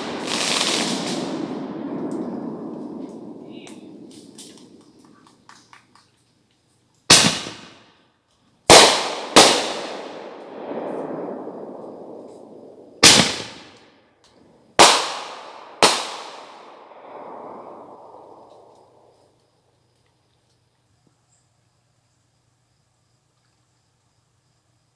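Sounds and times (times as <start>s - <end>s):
fireworks bangs: 0.0s - 6.0s, 7.1s - 7.9s, 8.7s - 13.9s, 14.8s - 19.3s
fireworks rumble: 0.0s - 7.9s, 8.6s - 20.3s.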